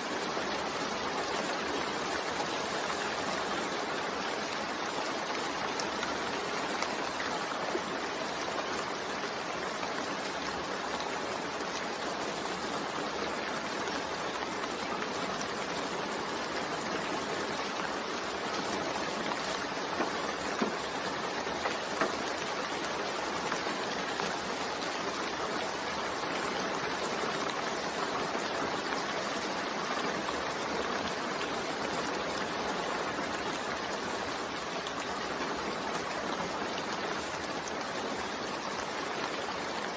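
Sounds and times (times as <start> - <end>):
raindrop ticks: 18.2 - 24.7.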